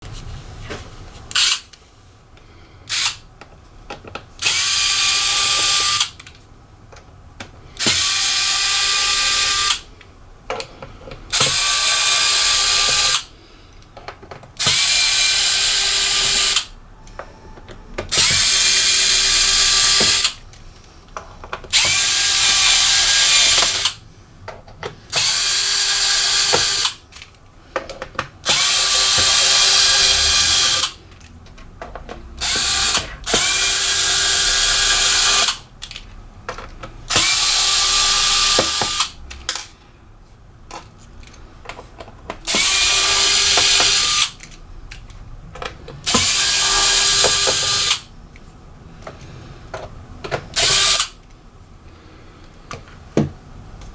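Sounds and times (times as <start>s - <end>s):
electric screwdriver whining: 1.3s - 1.7s, 2.9s - 3.2s, 4.4s - 6.2s, 7.8s - 9.8s, 11.3s - 13.3s, 14.6s - 16.7s, 18.1s - 20.4s, 21.7s - 24.0s, 25.1s - 27.0s, 28.4s - 31.0s, 32.4s - 35.6s, 37.1s - 39.2s, 42.5s - 44.4s, 46.1s - 48.1s, 50.5s - 51.2s.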